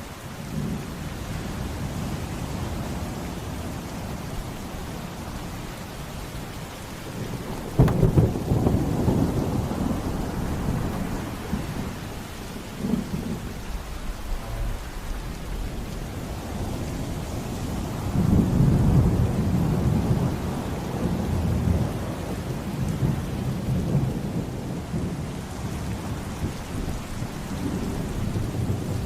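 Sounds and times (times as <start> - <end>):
rain falling: 0.0 - 29.0
thunderclap rumbling: 4.0 - 20.5, 25.7 - 29.0.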